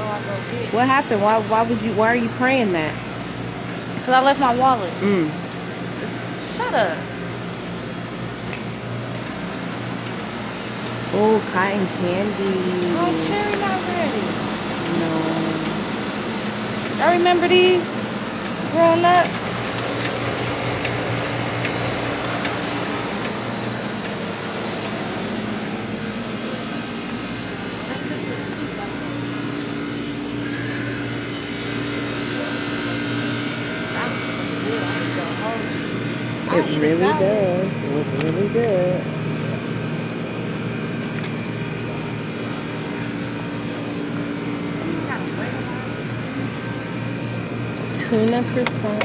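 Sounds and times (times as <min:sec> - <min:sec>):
air handling and refrigeration hum: 0:00.0 - 0:49.0
light regular ticking: 0:10.0 - 0:25.4.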